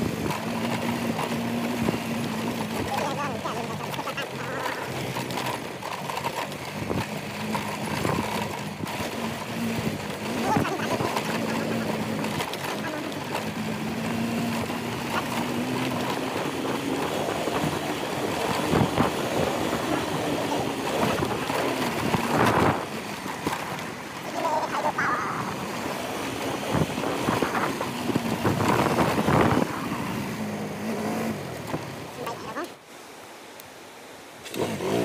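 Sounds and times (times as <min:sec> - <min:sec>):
wind buffeting microphone: 0:00.0 - 0:32.6
motorcycle engine running: 0:00.0 - 0:32.7, 0:34.5 - 0:35.0.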